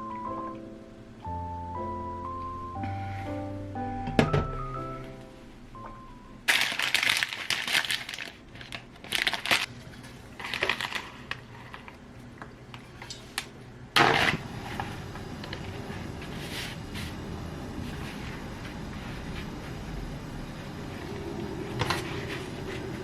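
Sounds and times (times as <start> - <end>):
rustling crinkling handling noise: 6.5 - 17.2.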